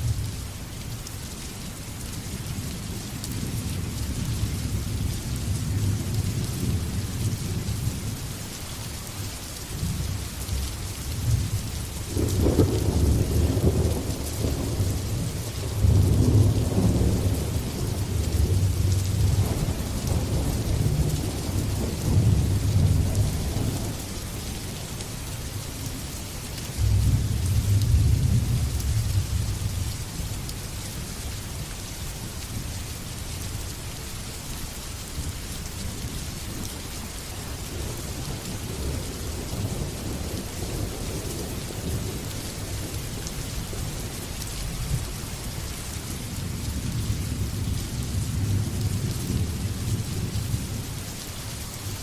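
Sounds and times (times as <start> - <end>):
heavy rain falling: 0.0 - 52.0
rolling thunder: 12.1 - 24.1, 26.8 - 29.8.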